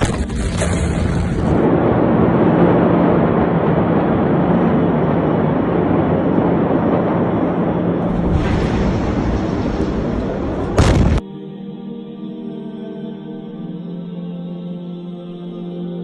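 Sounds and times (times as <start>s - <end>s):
explosion roar: 0.0s - 11.2s.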